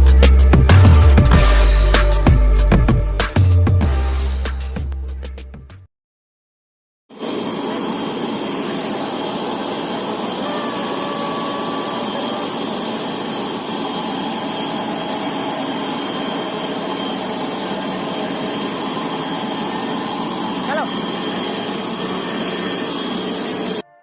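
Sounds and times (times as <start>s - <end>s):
high whines: 7.1s - 23.8s
jet cabin rushing drone: 7.1s - 23.8s.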